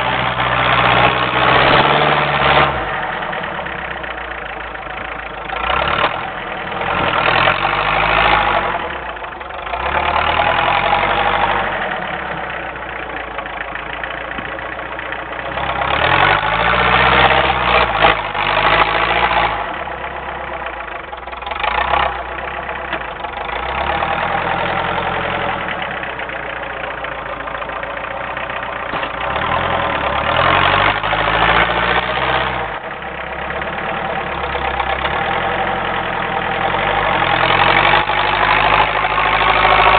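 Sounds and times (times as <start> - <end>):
tractor diesel engine revving: 0.0 - 39.9.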